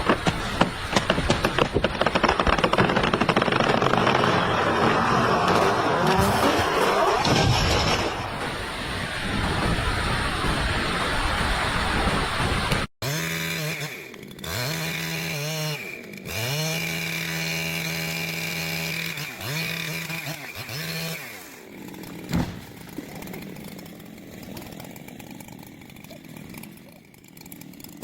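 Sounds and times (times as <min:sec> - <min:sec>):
chainsaw revving: 0:00.0 - 0:07.2, 0:13.0 - 0:28.0.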